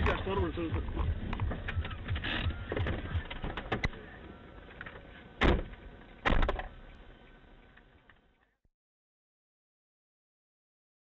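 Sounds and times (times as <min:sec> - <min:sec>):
loud thumps: 0:00.0 - 0:04.0, 0:05.4 - 0:06.8
rumbling noise: 0:00.0 - 0:04.4.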